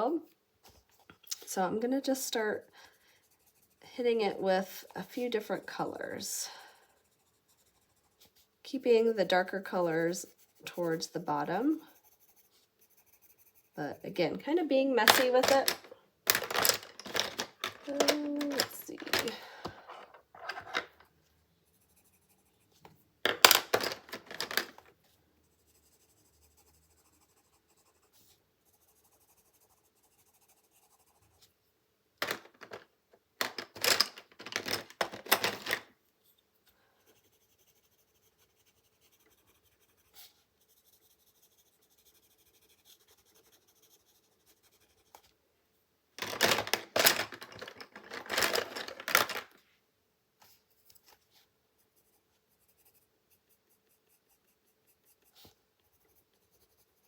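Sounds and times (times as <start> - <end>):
pencil scribbling on paper: 0.7 - 15.7, 21.6 - 22.9, 25.4 - 31.6, 37.0 - 45.3, 50.5 - 57.0.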